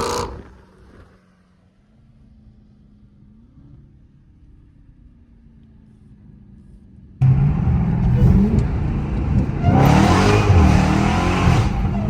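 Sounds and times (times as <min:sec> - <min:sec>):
car exhaust accelerating hard: 0:07.2 - 0:12.0.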